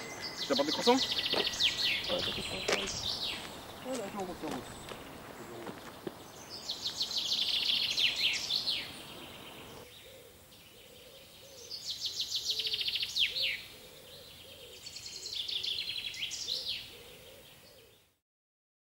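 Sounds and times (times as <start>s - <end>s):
outdoor background noise: 0.0s - 18.2s
songbird singing: 0.0s - 18.2s.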